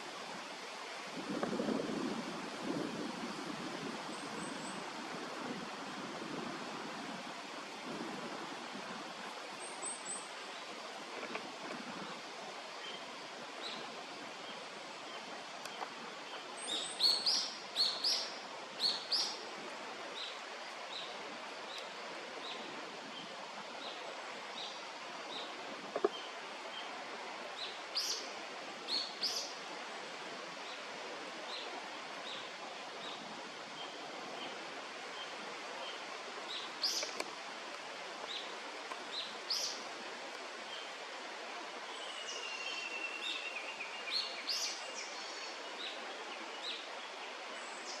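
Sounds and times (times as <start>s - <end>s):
steady background hiss: 0.0s - 48.0s.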